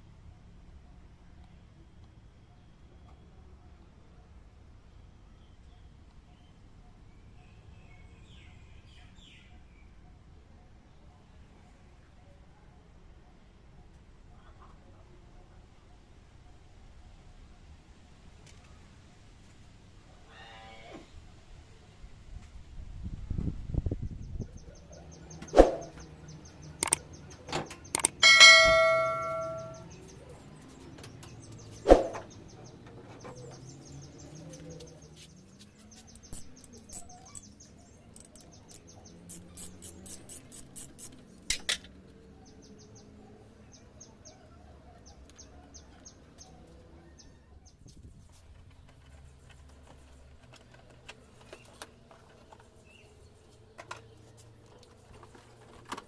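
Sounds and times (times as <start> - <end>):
metal tools clicking and knocking: 26.8 - 27.0, 27.6 - 29.8, 36.0 - 41.9
quick ticks and clicks: 26.8 - 28.2, 38.2 - 41.9
tool dropping and ringing: 28.0 - 29.8.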